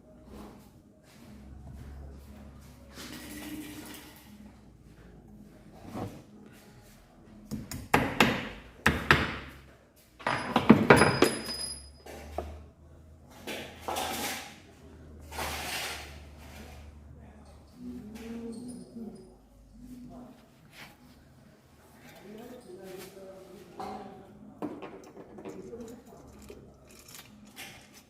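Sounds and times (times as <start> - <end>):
metal parts clinking and scraping: 25.8 - 28.0.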